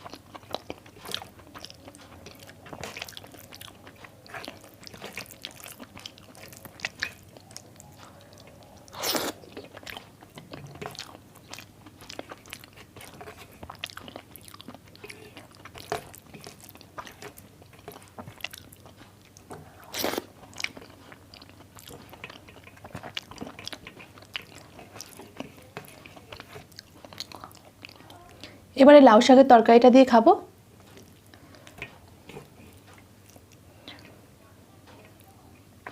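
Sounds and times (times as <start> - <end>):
person chewing food: 0.0 - 28.6, 30.8 - 34.2.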